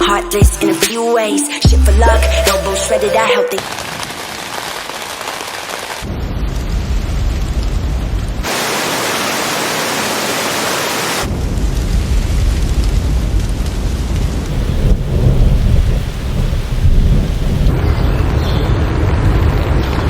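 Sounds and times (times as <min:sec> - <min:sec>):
rain falling: 0:01.7 - 0:17.8
low thunder rumbling: 0:14.5 - 0:17.8.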